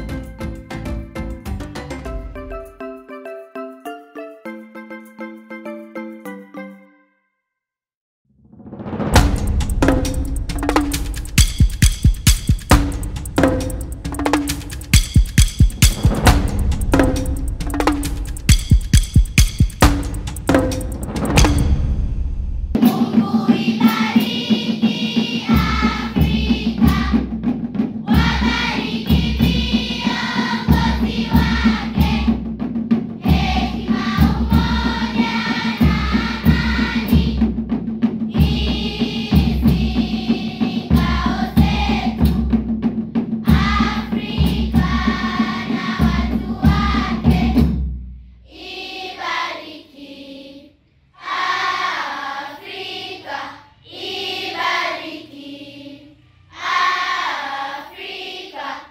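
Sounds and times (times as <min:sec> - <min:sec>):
pulsing bass beat: 0:09.4 - 0:22.7
choir singing in harmony: 0:20.5 - 0:32.6, 0:33.2 - 0:37.6, 0:38.3 - 0:42.5, 0:43.4 - 0:47.8, 0:48.5 - 0:58.9.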